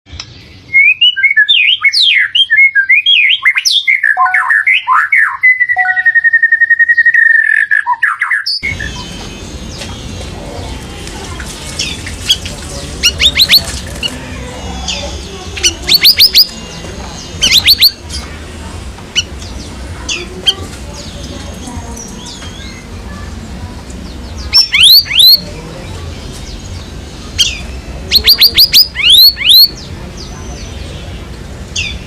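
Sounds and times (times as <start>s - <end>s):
bird warbling song: 0.2s - 11.0s, 11.7s - 18.4s, 19.1s - 23.3s, 24.0s - 32.0s
sharp high chirps: 5.4s - 7.9s
low background hum: 8.6s - 32.0s.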